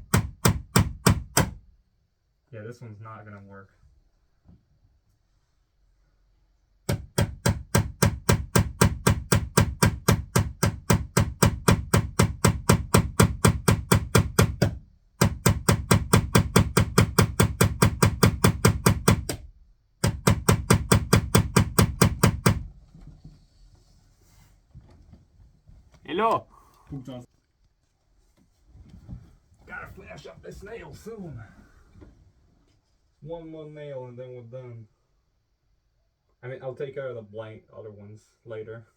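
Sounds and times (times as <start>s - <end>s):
hammer blows on a nail: 0.0s - 1.6s.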